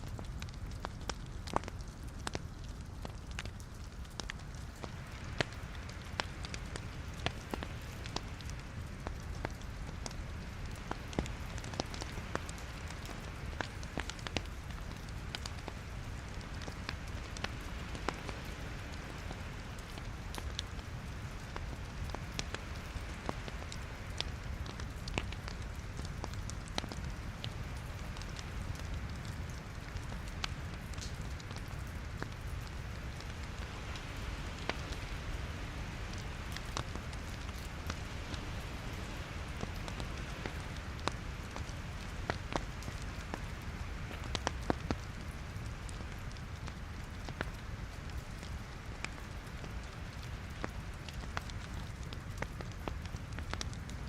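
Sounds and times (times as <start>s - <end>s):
low rumble of flame: 0.0s - 54.0s
wood crackles and pops: 0.0s - 54.0s.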